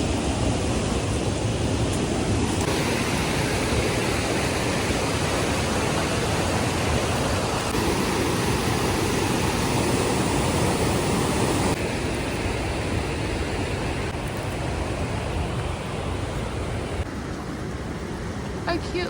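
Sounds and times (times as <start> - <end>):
creek water rushing over rocks: 2.0 - 17.3.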